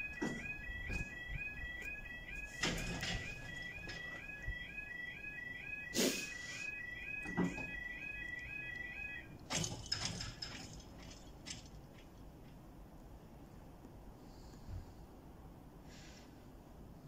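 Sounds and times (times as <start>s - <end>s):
level crossing alarm warbling: 0.0s - 10.6s
clatters and knocks: 9.4s - 12.6s.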